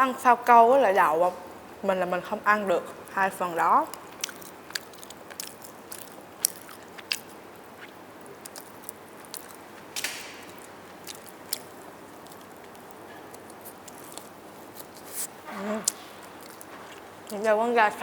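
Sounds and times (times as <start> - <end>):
mouth chewing roast chicken: 3.0 - 17.6
wet mouth clicks and smacks: 3.9 - 17.4.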